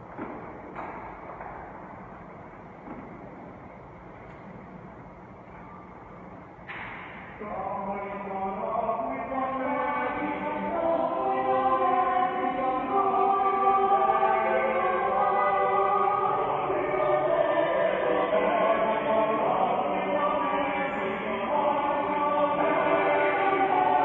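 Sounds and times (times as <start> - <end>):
church choir singing: 7.4 - 24.0.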